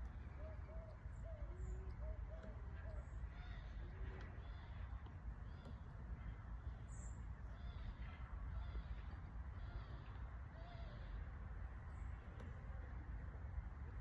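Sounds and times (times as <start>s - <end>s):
dove cooing: 0.0s - 4.6s
bird calling: 0.0s - 12.9s.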